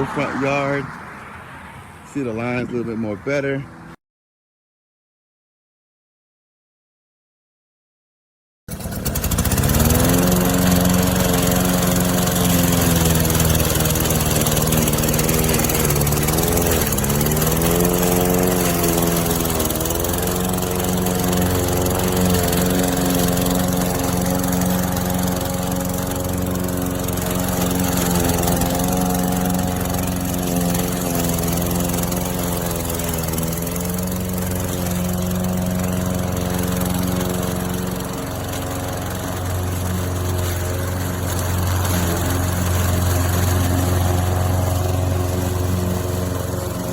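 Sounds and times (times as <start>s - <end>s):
lawn mower engine running: 0.0s - 0.9s, 8.7s - 46.9s.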